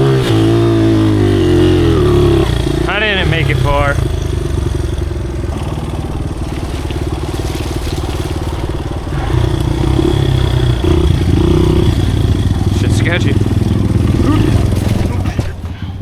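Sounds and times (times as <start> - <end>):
small motorcycle engine running: 0.0 - 16.0.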